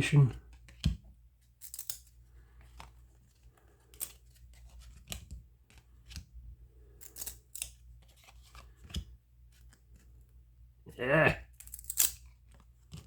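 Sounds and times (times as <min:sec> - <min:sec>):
trading cards flicking and sliding: 0:03.8 - 0:06.3, 0:11.6 - 0:13.0.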